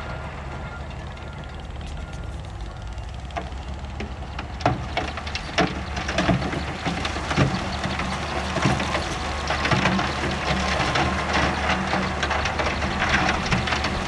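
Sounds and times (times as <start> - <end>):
bulldozer diesel engine running: 0.0 - 14.0
rock and gravel cracking: 3.4 - 14.0.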